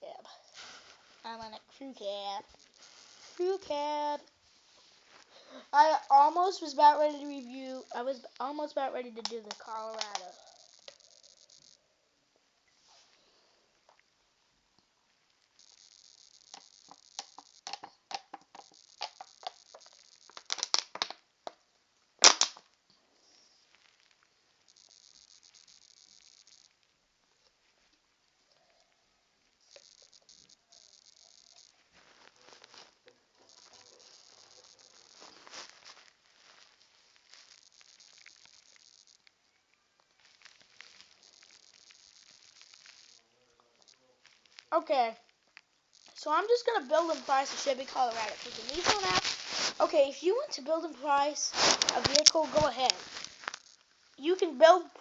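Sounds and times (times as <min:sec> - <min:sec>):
faint high hiss: 0:00.0 - 0:55.0
fingers tapping a phone: 0:16.0 - 0:20.7
soft clicks and handling noises: 0:51.6 - 0:53.6.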